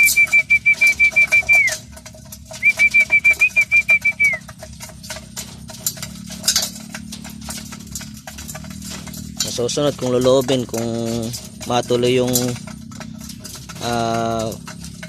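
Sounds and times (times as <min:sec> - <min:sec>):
trilled feeding whistle: 0:00.0 - 0:01.8, 0:02.6 - 0:04.4
faint rapid clicking: 0:00.0 - 0:15.0.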